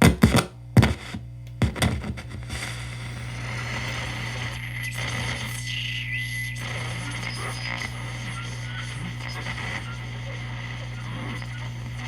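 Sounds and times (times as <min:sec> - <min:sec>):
radio static hiss: 0:00.0 - 0:12.0
low hum: 0:02.2 - 0:12.0
whistling tone: 0:04.6 - 0:11.8.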